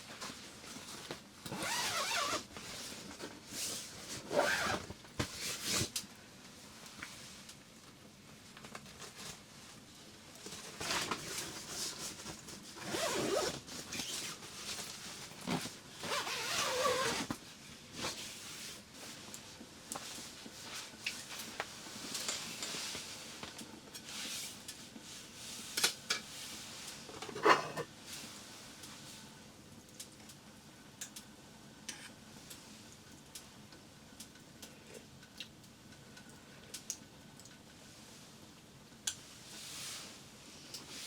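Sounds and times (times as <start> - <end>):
fabric rustling: 0.1 - 5.9, 12.8 - 17.3
zipper being pulled: 1.5 - 2.5, 4.1 - 4.9, 12.8 - 14.3, 15.5 - 17.3.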